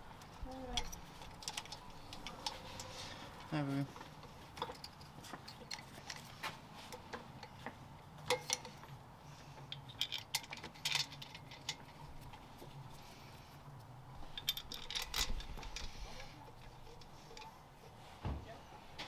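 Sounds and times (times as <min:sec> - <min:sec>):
metal tools clinking: 0:00.2 - 0:07.6, 0:08.2 - 0:08.9, 0:09.6 - 0:12.3, 0:14.3 - 0:17.6.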